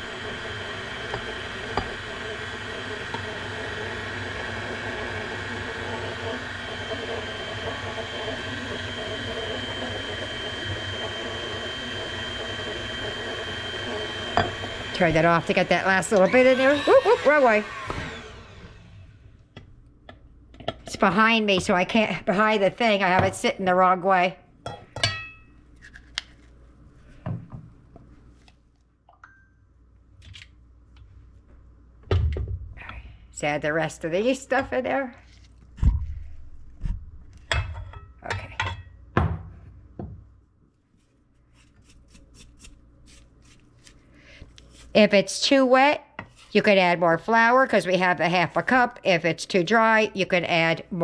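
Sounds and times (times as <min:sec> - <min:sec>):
stand mixer motor hum: 0:00.0 - 0:19.0
mixing bowl and utensils knocking: 0:14.2 - 0:15.3.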